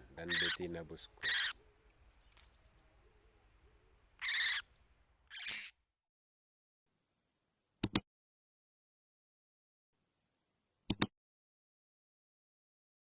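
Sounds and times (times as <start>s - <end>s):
harsh bird calls: 0.0s - 2.8s, 4.1s - 5.7s
sharp clicks: 7.8s - 8.0s, 10.9s - 11.1s.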